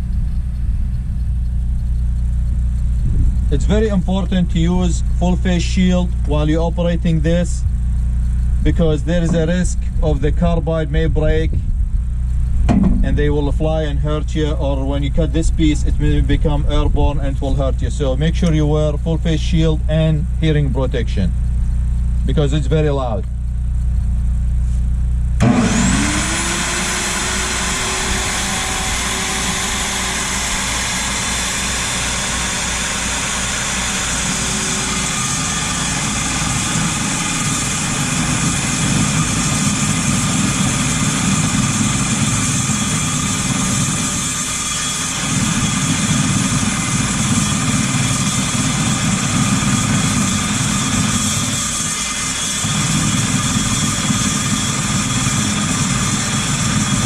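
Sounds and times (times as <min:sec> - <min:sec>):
chop saw running with high whine: 0:01.7 - 0:11.6, 0:12.4 - 0:21.3, 0:25.4 - 0:57.0
saw blade grinding metal: 0:42.2 - 0:57.0.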